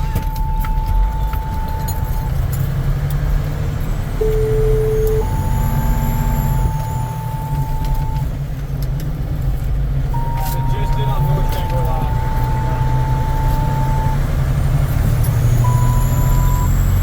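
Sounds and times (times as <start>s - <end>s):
two-tone paging tones over radio: 0.0s - 2.3s, 4.2s - 8.3s, 10.2s - 14.2s, 15.6s - 16.9s
heavy truck engine rumble: 0.0s - 17.0s.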